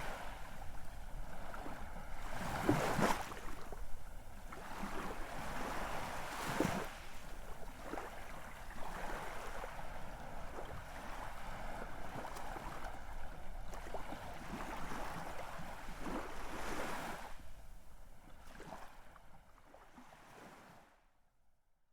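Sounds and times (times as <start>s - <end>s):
ocean waves breaking on shore: 0.0s - 17.5s.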